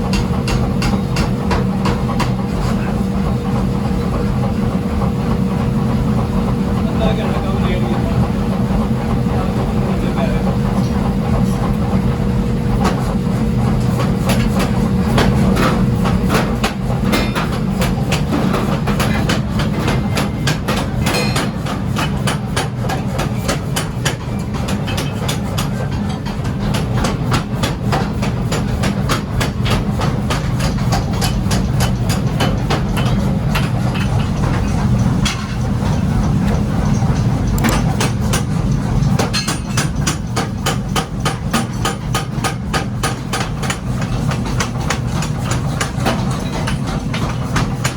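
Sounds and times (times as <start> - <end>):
low machine hum: 0.0 - 47.9
hammer striking steel: 16.3 - 36.0, 37.5 - 38.6, 39.2 - 47.9.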